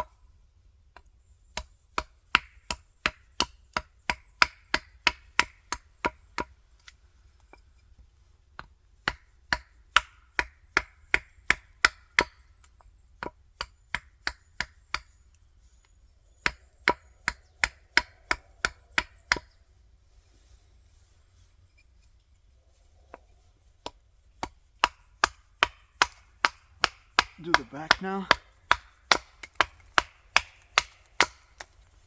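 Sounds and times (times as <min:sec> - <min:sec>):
axe chopping wood: 0:01.5 - 0:07.0, 0:08.6 - 0:12.4, 0:16.4 - 0:19.5, 0:23.8 - 0:31.8.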